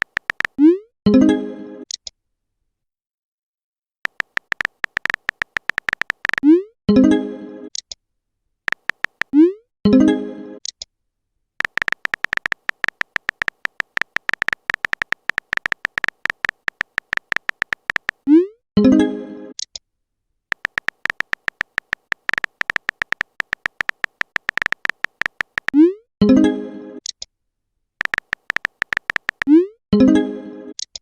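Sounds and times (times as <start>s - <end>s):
phone keyboard typing clicks: 0.0s - 0.7s, 4.1s - 6.6s, 8.7s - 9.4s, 11.6s - 18.3s, 20.5s - 25.9s, 28.0s - 29.6s.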